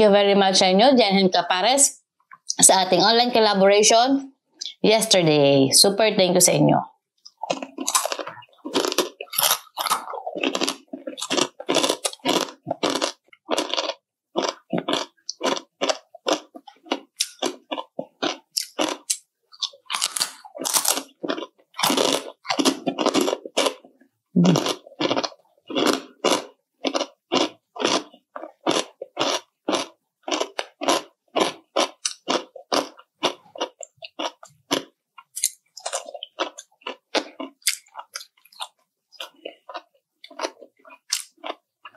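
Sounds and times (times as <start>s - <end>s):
loud crunchy chewing: 7.2s - 41.9s.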